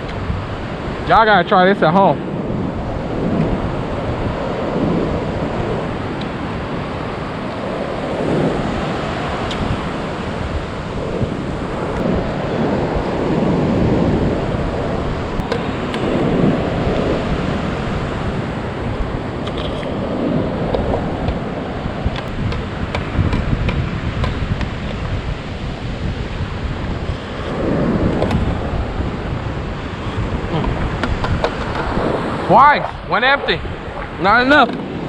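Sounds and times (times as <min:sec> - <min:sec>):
surf breaking on beach: 0:00.0 - 0:35.0
wind buffeting microphone: 0:00.0 - 0:35.0.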